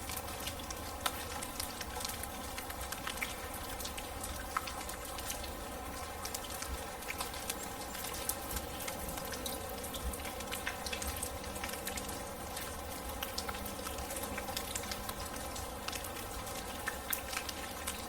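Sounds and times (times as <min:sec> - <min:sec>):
rain pattering and dripping: 0:00.0 - 0:18.0.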